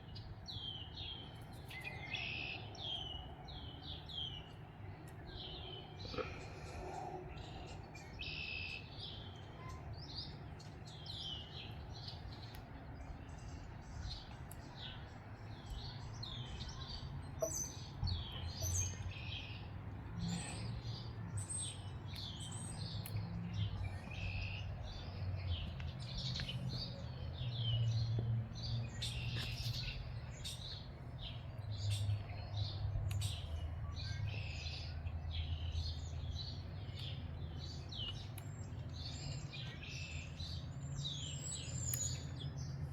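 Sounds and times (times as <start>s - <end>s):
songbirds chirping and singing: 0.0s - 42.9s.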